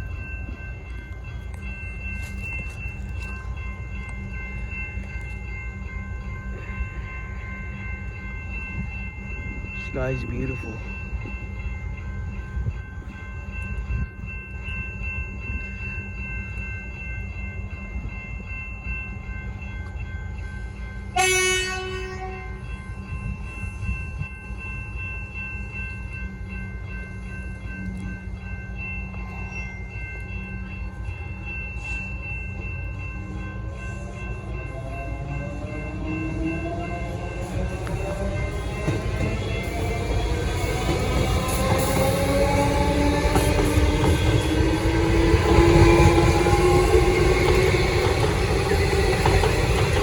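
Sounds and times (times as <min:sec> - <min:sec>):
constant high tones: 0:00.0 - 0:50.0
train rumble: 0:00.0 - 0:50.0
train horn blast: 0:21.2 - 0:22.5.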